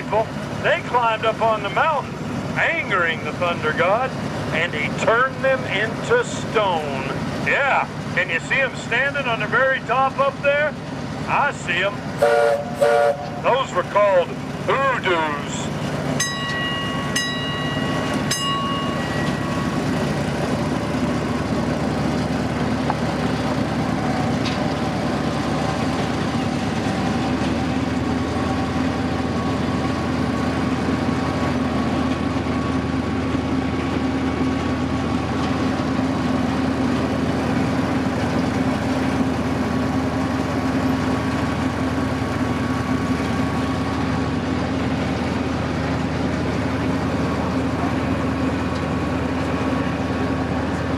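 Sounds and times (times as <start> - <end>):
train engine drone: 0.0 - 50.9
wheels rolling on rails: 13.3 - 50.9.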